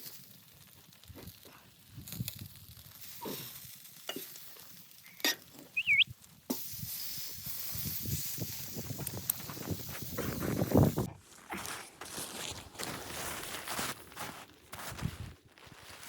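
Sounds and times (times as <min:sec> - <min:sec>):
sizzling hiss with ticking: 0:00.0 - 0:11.1.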